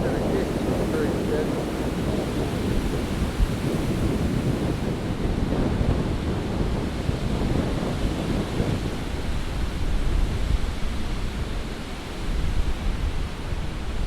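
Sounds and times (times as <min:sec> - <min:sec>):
storm surf breaking: 0:00.0 - 0:14.0
wind buffeting microphone: 0:00.0 - 0:14.0.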